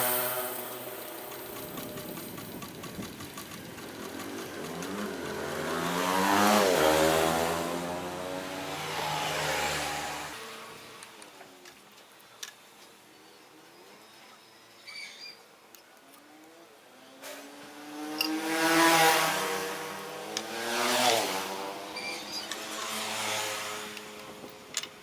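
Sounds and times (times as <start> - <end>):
vehicle engine passing by: 3.9 - 10.8, 17.3 - 24.2.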